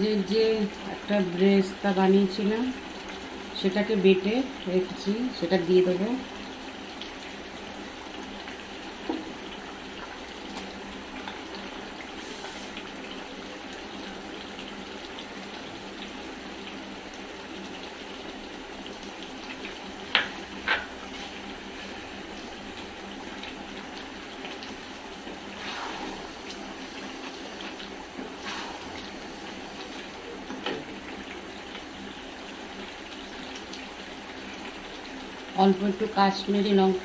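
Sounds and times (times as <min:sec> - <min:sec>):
meat sizzling in a pan: 0:06.3 - 0:35.4.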